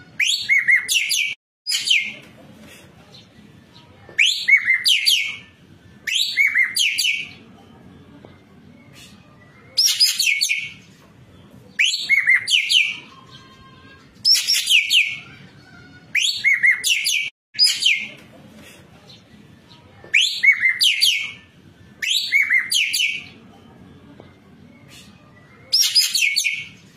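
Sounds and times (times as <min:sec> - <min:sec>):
bird singing shrill sweeping notes: 0:09.7 - 0:10.8, 0:25.7 - 0:26.9.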